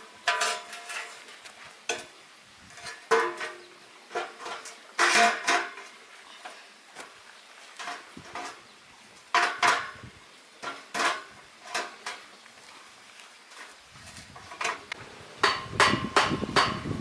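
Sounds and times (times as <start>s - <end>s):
iron bars clanking: 14.6s - 17.0s.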